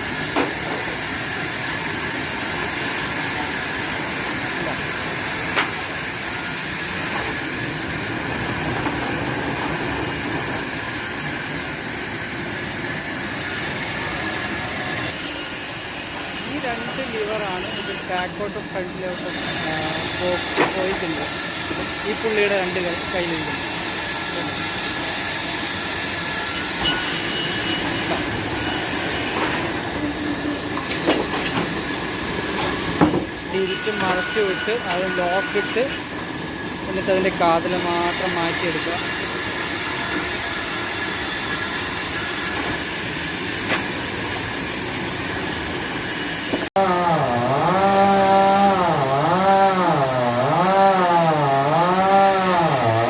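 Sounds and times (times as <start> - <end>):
log saw running: 0.0 - 53.0.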